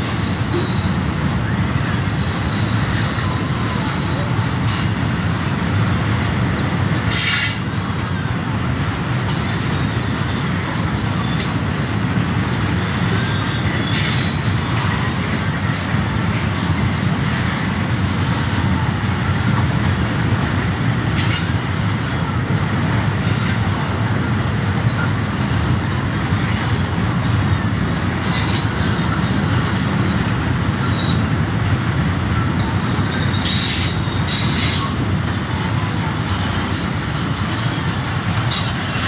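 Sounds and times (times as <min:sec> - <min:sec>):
train wheels rumbling on rails: 0:00.0 - 0:39.0
sharp high-pitched wheel squeals: 0:00.1 - 0:05.1, 0:11.1 - 0:11.8, 0:13.0 - 0:14.7, 0:28.2 - 0:29.6, 0:30.8 - 0:39.0.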